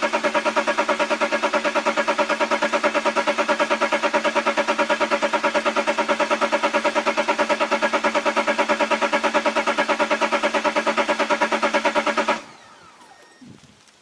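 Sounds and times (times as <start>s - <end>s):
diesel engine cranking on starter: 0.0s - 13.4s.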